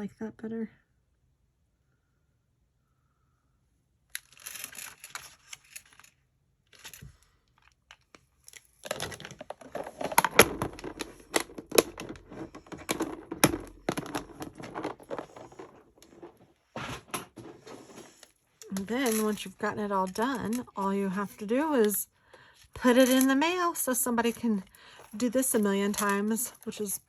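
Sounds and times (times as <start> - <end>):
paper rustling and crinkling: 8.6 - 22.0.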